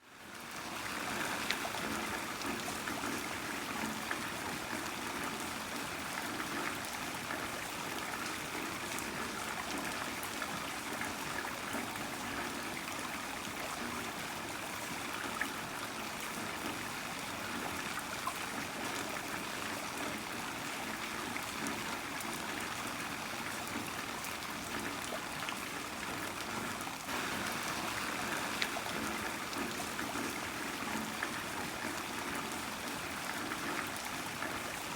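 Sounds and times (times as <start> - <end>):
water trickling: 0.2 - 34.9
rain drops ticking: 0.3 - 5.1, 25.9 - 34.9
heavy rain hiss: 27.1 - 31.8.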